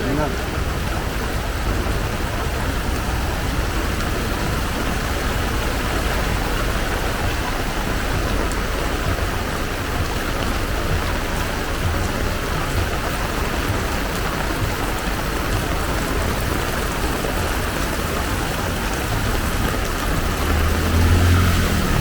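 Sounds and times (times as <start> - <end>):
heavy rain: 0.0 - 22.0
vehicle engine approaching: 15.8 - 22.0.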